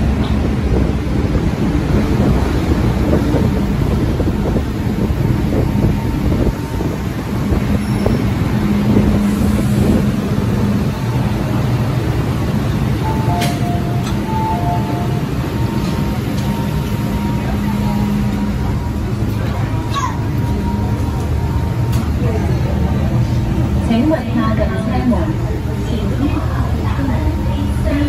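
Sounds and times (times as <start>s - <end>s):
train wheels rumbling: 0.0s - 28.0s
two-note electronic chime: 13.1s - 16.2s.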